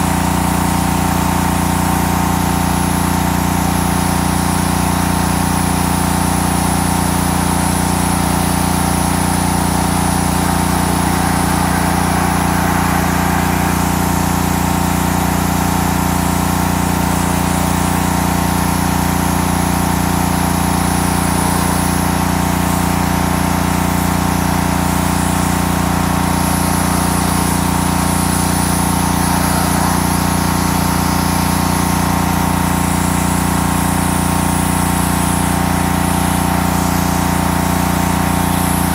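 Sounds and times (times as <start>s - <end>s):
pressure washer engine running: 0.0s - 38.9s.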